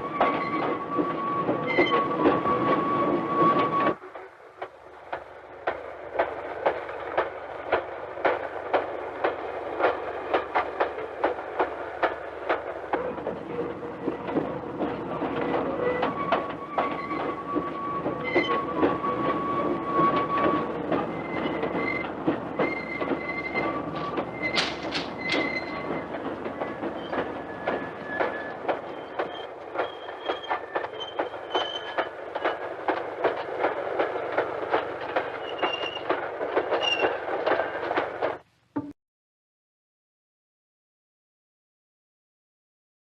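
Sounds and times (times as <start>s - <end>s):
high wheel squeals: 0.0s - 4.0s, 15.5s - 32.6s, 35.3s - 36.1s, 36.7s - 37.8s
train clattering over rail joints: 0.0s - 38.5s.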